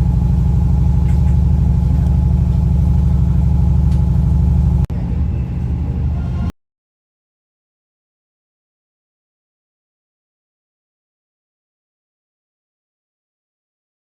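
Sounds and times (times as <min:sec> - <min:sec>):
diesel train engine idling: 0:00.0 - 0:06.5.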